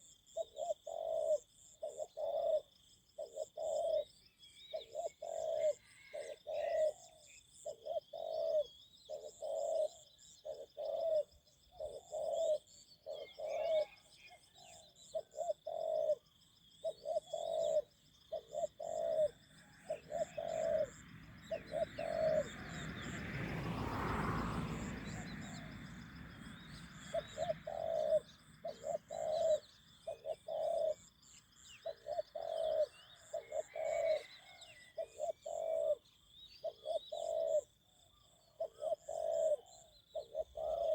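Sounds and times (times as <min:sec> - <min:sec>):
dove cooing: 0:00.0 - 0:40.9
small birds chirping: 0:06.7 - 0:23.2, 0:24.7 - 0:40.9
insects chirping: 0:15.1 - 0:34.4.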